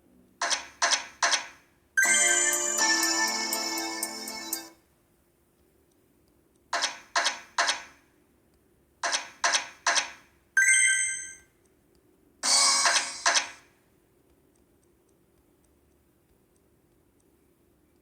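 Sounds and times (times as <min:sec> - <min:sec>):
bright chime ringing: 0:02.0 - 0:04.7
slot machine clacks: 0:02.0 - 0:04.7, 0:12.4 - 0:13.6
slot machine sound burst: 0:02.0 - 0:04.7, 0:12.4 - 0:13.3.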